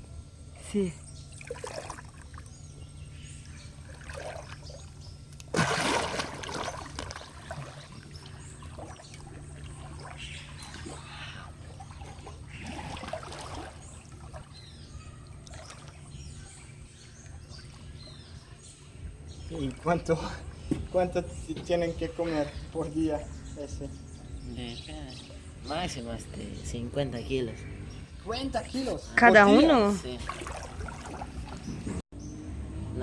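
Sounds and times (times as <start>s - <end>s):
steady low hum: 0.0s - 33.0s
water splashing and trickling: 1.3s - 33.0s
faint bird calls: 6.5s - 32.0s.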